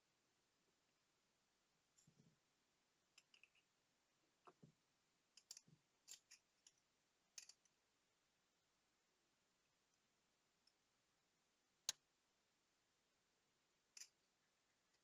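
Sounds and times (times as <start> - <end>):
small tools clicking and tapping: 3.2 - 3.6, 5.4 - 6.8, 7.4 - 7.7, 14.0 - 14.2.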